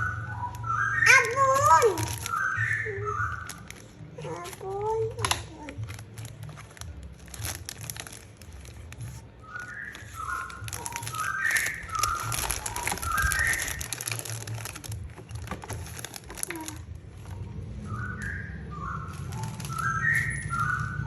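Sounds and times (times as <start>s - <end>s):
plastic packaging crinkling: 0.0s - 21.0s
high whistle-like notes: 17.8s - 21.0s.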